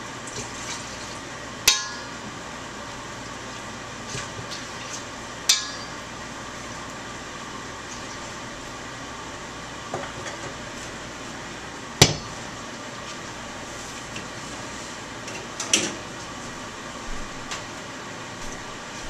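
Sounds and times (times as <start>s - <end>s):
metal utensils clanking on wok: 5.5s - 6.0s.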